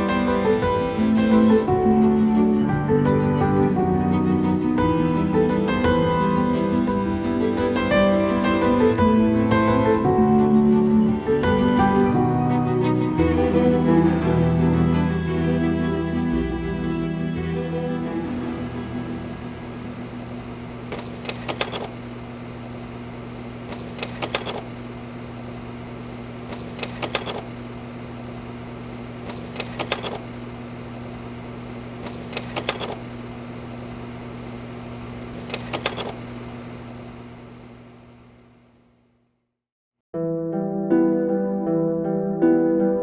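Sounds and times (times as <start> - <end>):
small machine humming: 0.0 - 39.4
rapid clicks: 17.4 - 38.5.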